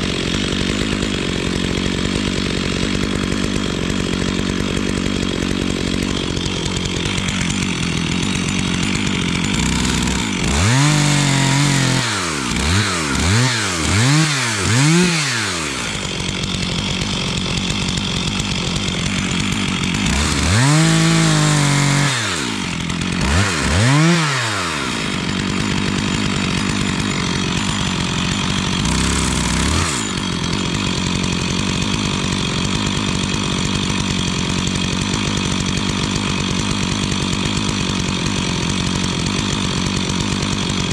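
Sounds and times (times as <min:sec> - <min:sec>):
chainsaw idling and revving: 0:00.0 - 0:40.9.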